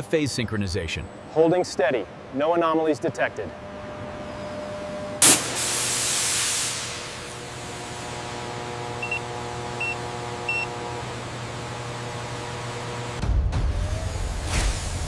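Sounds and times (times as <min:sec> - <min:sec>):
machine hum with held tones: 0:03.4 - 0:05.2, 0:07.0 - 0:13.2
loud hiss: 0:05.2 - 0:08.2.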